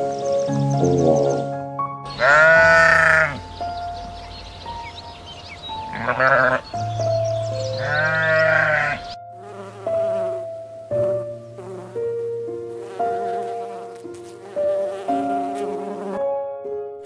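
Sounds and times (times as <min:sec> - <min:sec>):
soft piano music: 0:00.0 - 0:17.0
sheep bleat: 0:02.1 - 0:03.4, 0:05.8 - 0:06.6, 0:07.8 - 0:09.1
bee buzzing: 0:08.0 - 0:16.3.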